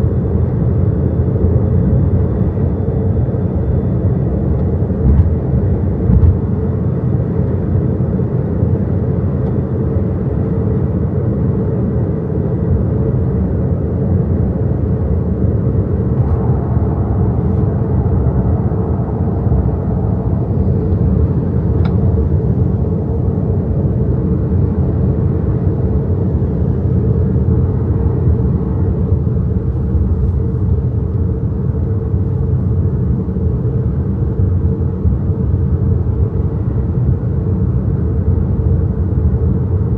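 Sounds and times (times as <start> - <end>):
road and tyre rumble: 3.6 - 8.0, 14.2 - 34.3
car bump: 6.1 - 6.4.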